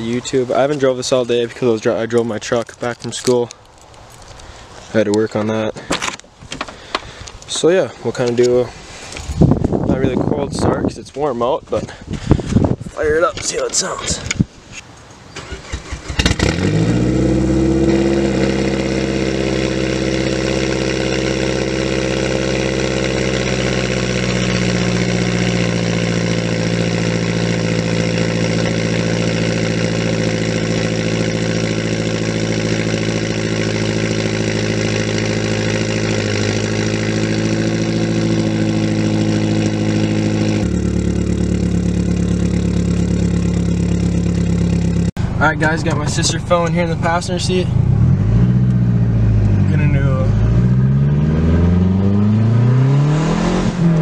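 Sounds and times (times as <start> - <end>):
car engine cranking: 15.3 - 54.0
car engine idling: 15.5 - 52.1.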